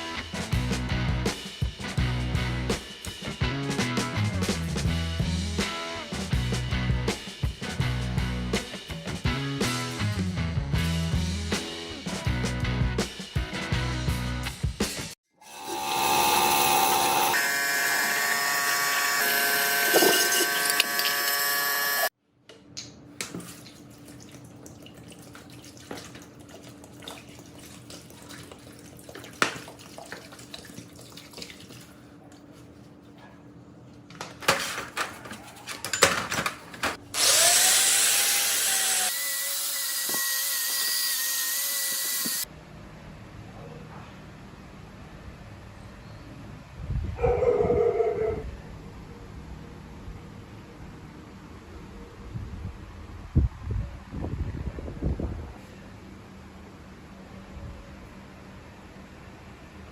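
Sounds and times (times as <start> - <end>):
power tool running: 15.4 - 22.1, 37.1 - 42.5.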